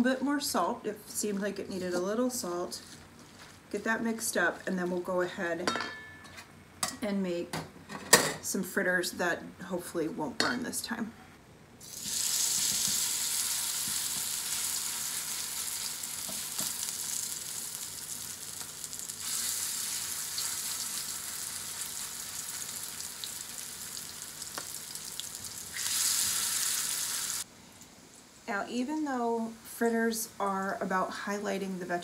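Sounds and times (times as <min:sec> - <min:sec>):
batter sizzling in hot oil: 0:11.8 - 0:27.5.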